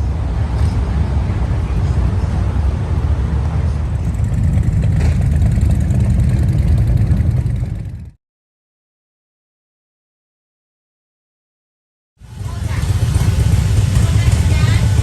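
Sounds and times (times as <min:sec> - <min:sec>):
motor vehicle running: 0:00.0 - 0:08.2, 0:12.2 - 0:15.0.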